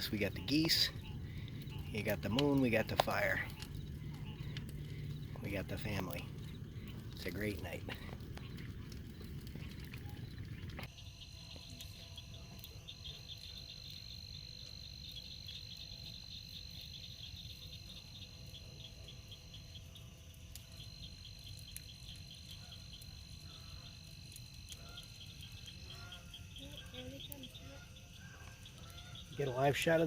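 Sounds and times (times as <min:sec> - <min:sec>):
low rumble: 0:00.0 - 0:10.9
rapid pulsing frog calls: 0:00.0 - 0:11.4, 0:12.0 - 0:29.7.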